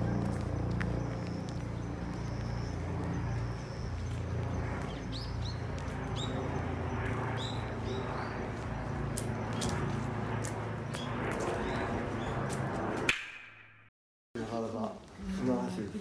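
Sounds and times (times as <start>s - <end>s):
small birds chirping: 0.0s - 12.5s
steady low rumble: 0.0s - 13.1s.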